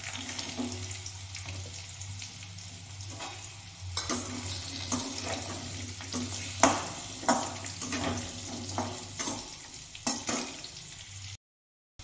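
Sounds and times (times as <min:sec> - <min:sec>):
potatoes sizzling in hot oil: 0:00.0 - 0:11.4
spatula scraping metal pan: 0:03.1 - 0:10.7.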